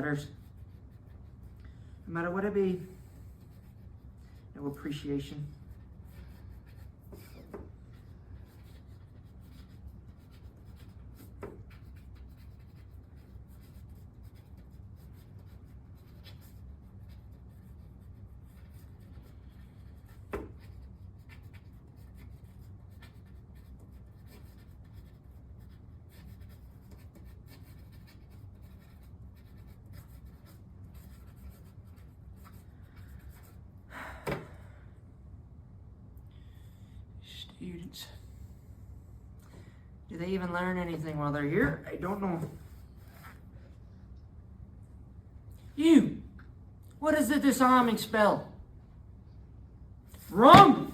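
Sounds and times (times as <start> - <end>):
pen scratching on paper: 3.4 - 4.0, 5.7 - 33.6.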